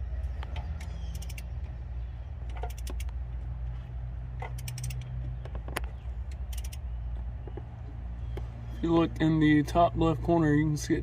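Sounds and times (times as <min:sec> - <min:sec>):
low mechanical hum: 0:00.0 - 0:11.0
gear clicking and jingling: 0:04.4 - 0:06.8.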